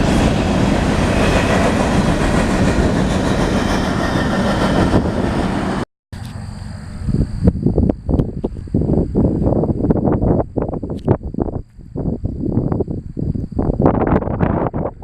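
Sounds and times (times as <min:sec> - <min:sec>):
freight train wheels rattling: 0:00.0 - 0:05.8
high-pitched insect buzz: 0:06.2 - 0:14.8.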